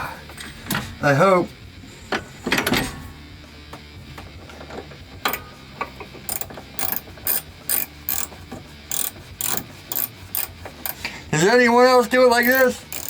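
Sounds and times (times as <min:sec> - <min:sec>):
ratchet wrench clicking: 0:05.3 - 0:05.5, 0:06.3 - 0:11.2, 0:12.4 - 0:13.0.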